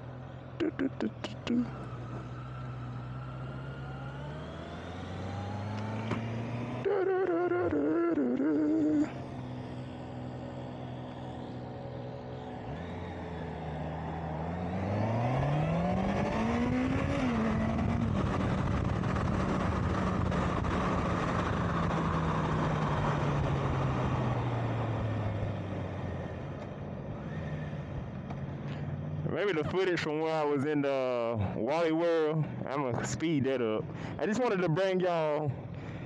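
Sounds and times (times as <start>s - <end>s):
motorcycle engine accelerating: 0.0s - 29.8s.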